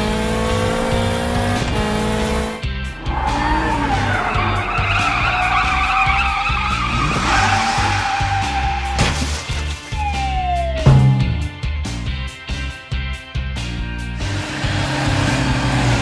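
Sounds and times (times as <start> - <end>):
upbeat background music: 0.0 - 16.0
cartoon tyre screech: 3.0 - 10.8
sharp knock: 10.9 - 11.6.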